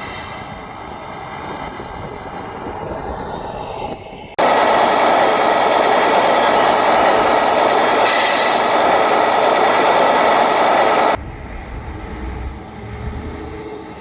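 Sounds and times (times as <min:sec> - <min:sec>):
street traffic rushing: 0:00.0 - 0:14.0
wind: 0:00.0 - 0:14.0.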